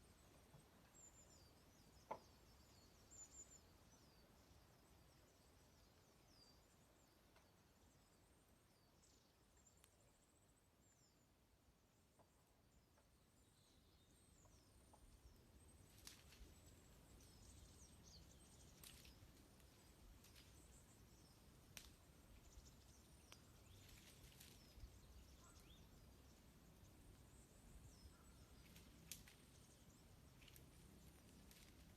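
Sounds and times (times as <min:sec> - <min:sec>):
small birds chirping: 0:00.0 - 0:31.9
wood fire crackling: 0:18.7 - 0:24.9.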